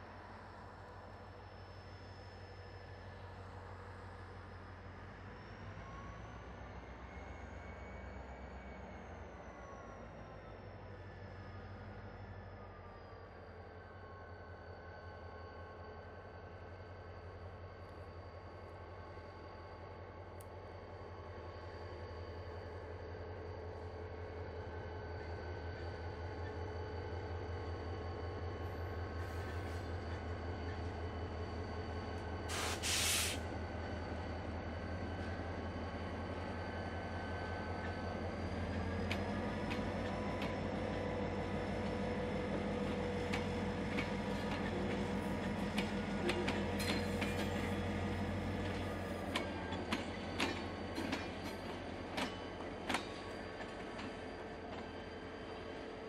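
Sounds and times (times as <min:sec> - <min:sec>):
low pulsing train hum: 0:00.0 - 0:56.0
short hiss of air: 0:32.5 - 0:33.4.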